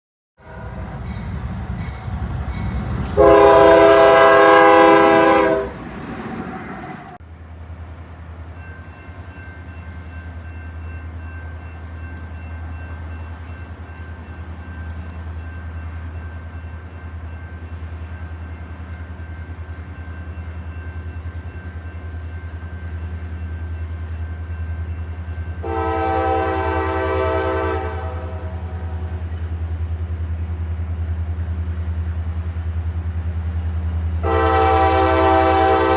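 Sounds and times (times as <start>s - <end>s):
locomotive air horn blast: 0.4s - 0.9s, 3.1s - 5.8s, 25.6s - 29.2s, 34.2s - 35.9s.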